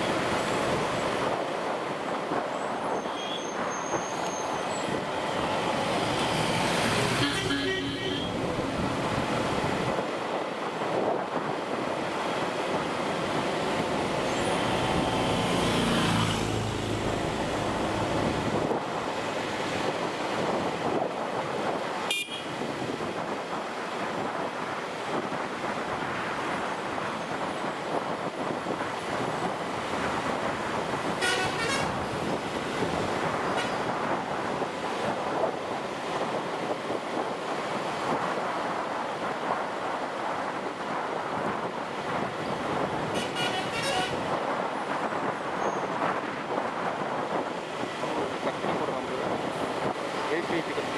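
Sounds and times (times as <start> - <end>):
vehicle horn beeping: 7.2 - 8.4, 22.1 - 22.5, 31.2 - 32.0, 33.5 - 33.9, 43.1 - 44.3
motorcycle engine and wind noise: 10.9 - 50.9.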